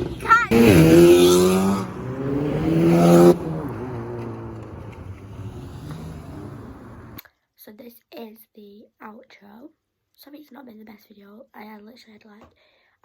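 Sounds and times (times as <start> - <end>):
car engine revving: 0.0 - 7.2.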